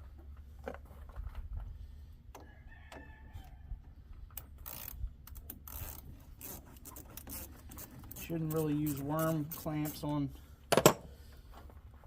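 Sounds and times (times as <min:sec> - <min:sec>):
rooster crowing faintly: 0:02.4 - 0:03.8.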